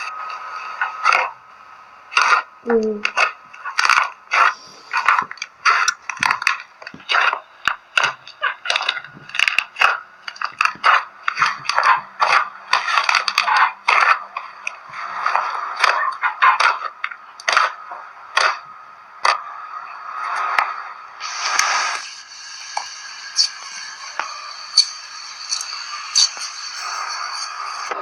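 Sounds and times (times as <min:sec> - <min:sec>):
slime crackling and squelching: 0:02.1 - 0:18.6.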